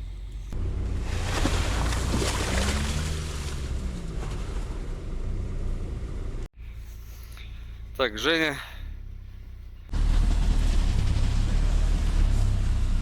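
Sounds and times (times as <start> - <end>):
vehicle engine running under load: 0.0 - 8.0, 8.8 - 13.0.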